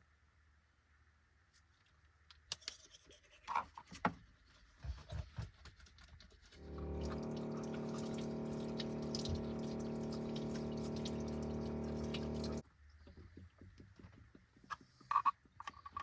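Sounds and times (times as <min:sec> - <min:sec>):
electric water pump humming: 0:06.6 - 0:12.6
water flowing: 0:06.6 - 0:12.6
faint ticks and drips: 0:06.7 - 0:13.5.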